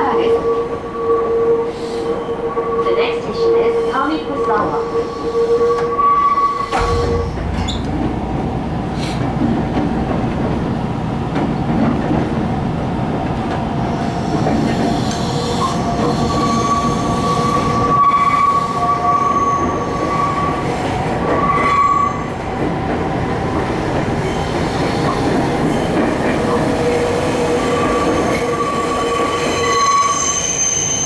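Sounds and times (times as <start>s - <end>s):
train wheels rumbling on rails: 3.0s - 31.0s
high wheel squeal: 27.9s - 31.0s.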